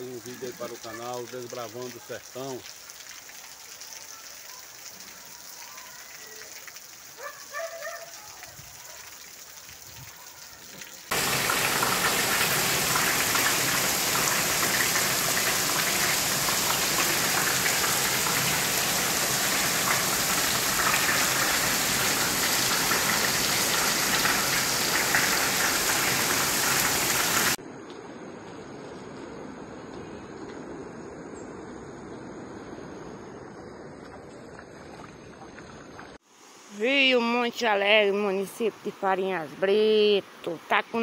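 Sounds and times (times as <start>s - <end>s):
heavy rain falling: 8.0s - 27.6s.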